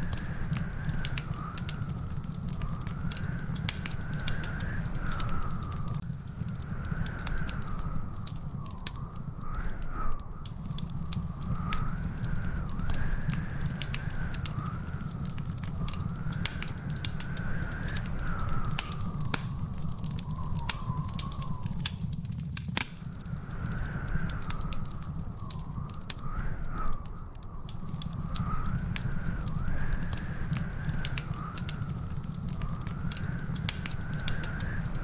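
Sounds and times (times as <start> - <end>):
low fire rumble: 0.0 - 35.0
wood fire crackling and popping: 0.0 - 35.0
faint wavering whistle: 17.3 - 22.1.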